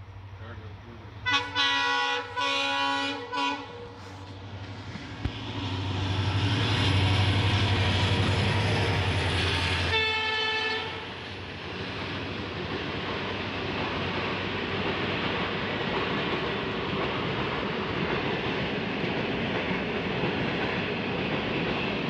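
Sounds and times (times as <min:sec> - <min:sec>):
train coaches rattling: 0:00.2 - 0:22.0
train horn blasts: 0:01.2 - 0:04.3, 0:09.8 - 0:11.2.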